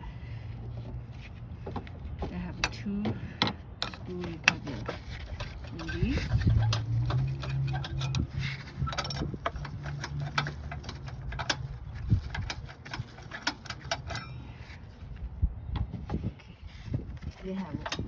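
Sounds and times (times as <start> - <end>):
socket wrench ratcheting: 3.8 - 14.3.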